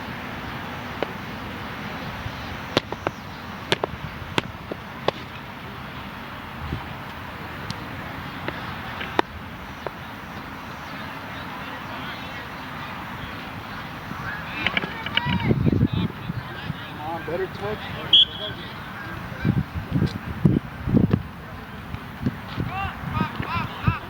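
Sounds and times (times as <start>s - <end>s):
outdoor background noise: 0.0s - 24.0s
soccer ball being kicked: 2.7s - 5.4s.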